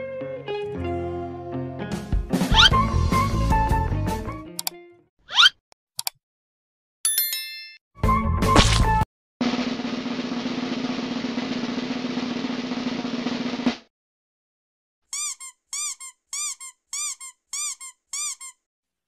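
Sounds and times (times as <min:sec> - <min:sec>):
cartoon squeaks: 0:02.5 - 0:02.8, 0:05.3 - 0:05.6, 0:15.1 - 0:18.7.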